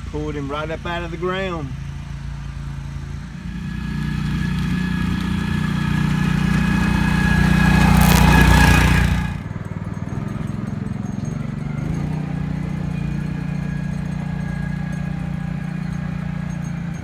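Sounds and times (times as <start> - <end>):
tractor engine running: 3.1 - 17.0
rushing noise: 3.4 - 9.4.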